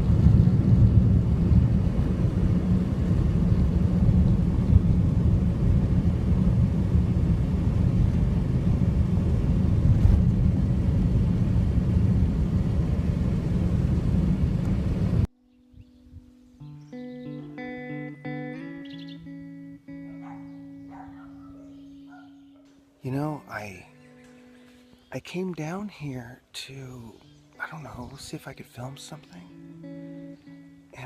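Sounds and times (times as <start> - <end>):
car road and engine rumble: 0.0 - 15.3.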